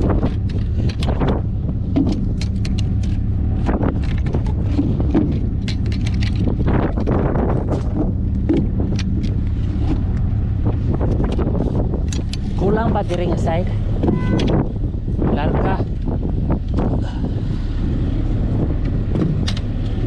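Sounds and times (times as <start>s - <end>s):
knocks and clatter: 0.0s - 13.4s, 18.8s - 20.0s
vehicle engine running: 0.0s - 20.0s.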